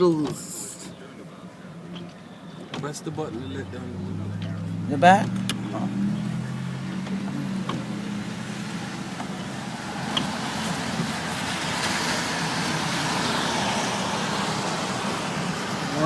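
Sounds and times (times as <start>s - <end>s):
car tyres hissing through water: 8.0s - 16.0s.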